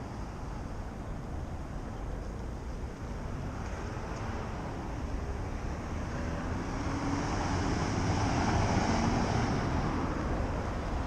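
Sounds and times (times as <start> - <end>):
street traffic noise: 0.0 - 11.0
vehicle approaching: 3.0 - 11.0.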